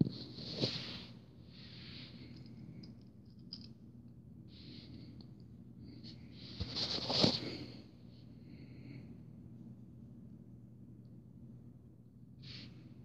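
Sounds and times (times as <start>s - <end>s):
faint handling rustling: 0.0s - 2.9s, 6.0s - 7.8s
low steady hum: 0.0s - 13.0s.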